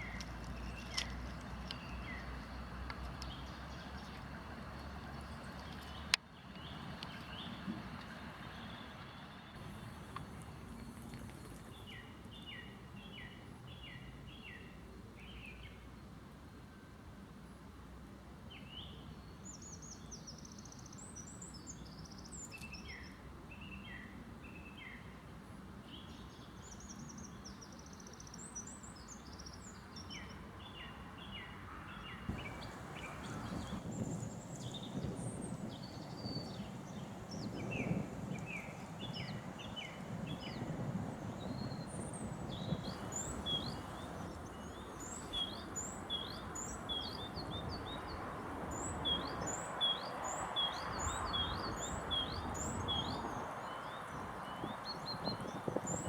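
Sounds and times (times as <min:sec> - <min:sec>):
songbirds singing and calling: 0:00.0 - 0:15.8, 0:25.9 - 0:56.0
steady background noise: 0:32.3 - 0:34.6.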